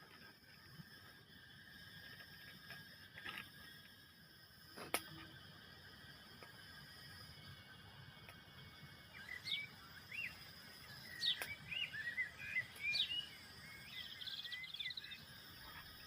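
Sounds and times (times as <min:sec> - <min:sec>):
faint steady hiss: 0:00.0 - 0:16.0
small bird chirping and trilling: 0:09.1 - 0:16.0.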